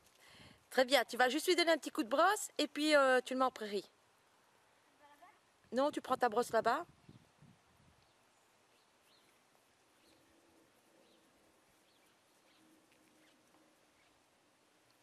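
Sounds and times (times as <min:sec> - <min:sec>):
faint bird chirps: 0:08.0 - 0:14.3.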